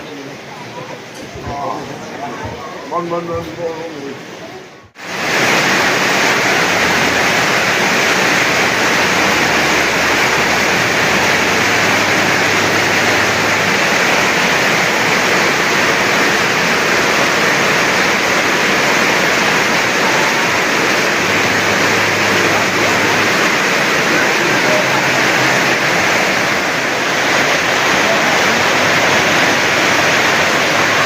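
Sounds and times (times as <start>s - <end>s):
rushing water: 0.0s - 31.0s.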